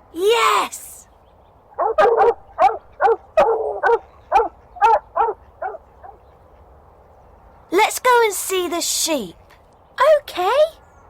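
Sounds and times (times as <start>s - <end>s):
dog barking: 1.8s - 6.2s.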